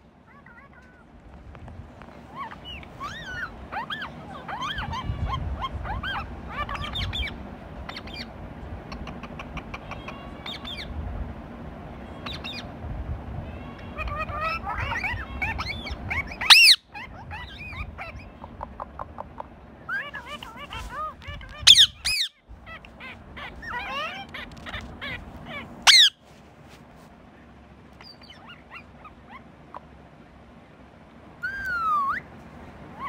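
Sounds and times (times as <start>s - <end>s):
low background rumble: 0.0s - 33.0s
birds chirping: 2.1s - 11.0s, 11.7s - 12.8s, 13.4s - 26.3s, 27.2s - 33.0s
loud shrill bird call: 9.8s - 10.9s, 13.5s - 18.4s, 21.6s - 22.4s, 25.6s - 26.2s, 28.0s - 29.2s, 31.4s - 32.3s.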